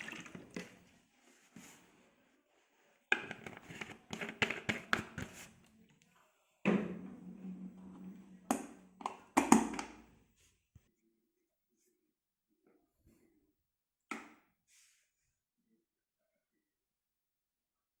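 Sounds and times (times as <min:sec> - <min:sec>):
objects knocking and clattering: 0:06.7 - 0:10.1.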